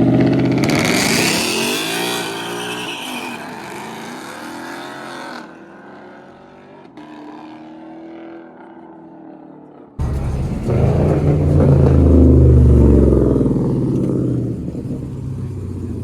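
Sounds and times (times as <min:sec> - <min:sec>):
car accelerating at full throttle: 0:10.0 - 0:16.0.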